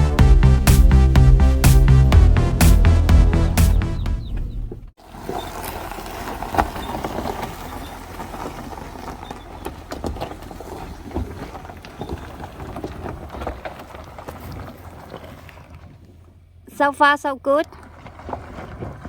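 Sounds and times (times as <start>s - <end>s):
low engine rumble: 0.0s - 12.0s
stones crunching under tyres: 4.2s - 16.2s.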